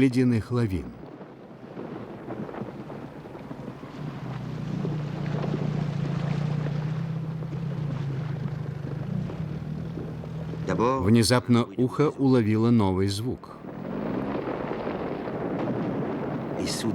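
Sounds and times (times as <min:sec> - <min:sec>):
wind noise: 0:00.0 - 0:16.9
outboard motor humming: 0:03.5 - 0:11.0.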